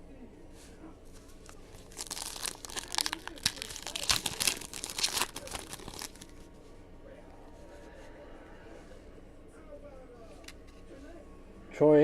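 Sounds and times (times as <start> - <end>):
plastic wrapper crinkling and tearing: 1.2 - 6.5.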